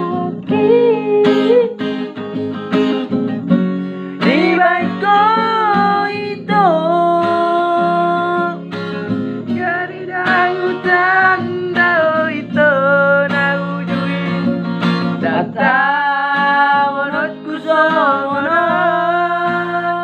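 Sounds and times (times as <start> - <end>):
person singing long held notes: 0.0 - 1.8
acoustic guitar accompaniment: 0.0 - 20.0.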